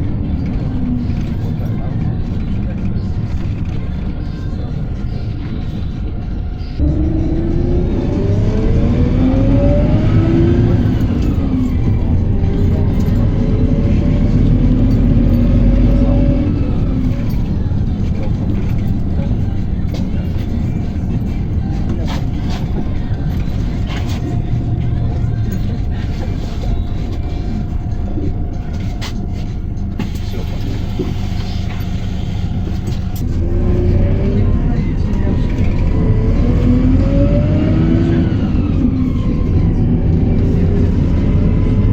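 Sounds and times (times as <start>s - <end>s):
bus engine accelerating: 0.0s - 41.9s
engine whine climbing in pitch: 0.0s - 41.9s.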